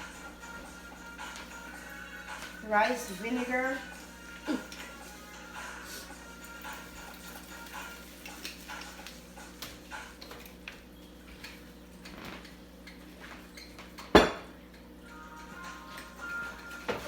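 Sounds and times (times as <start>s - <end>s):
bottles and utensils clinking: 13.6s - 14.6s.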